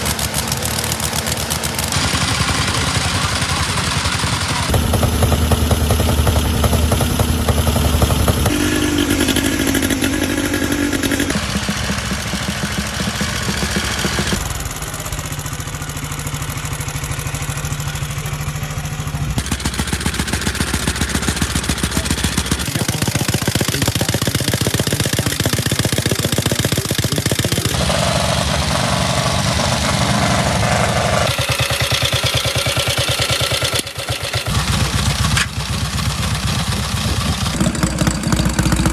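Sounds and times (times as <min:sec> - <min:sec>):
vintage motorcycle engines running: 0:00.0 - 0:38.9
mechanical clatter: 0:19.4 - 0:28.4.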